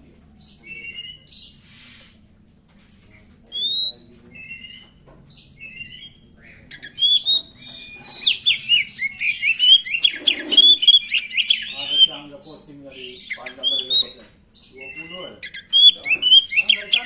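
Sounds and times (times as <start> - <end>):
bird singing: 0.0 - 2.2, 3.5 - 17.0.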